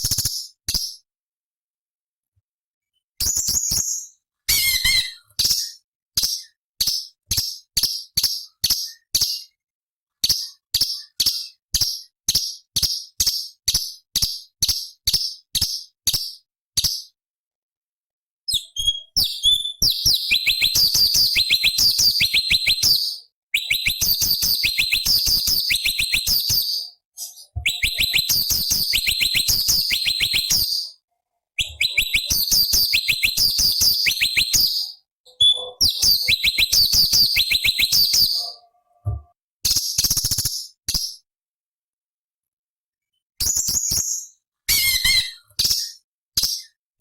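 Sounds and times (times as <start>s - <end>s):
bird singing rapid trills: 18.9s - 31.0s, 31.6s - 39.0s.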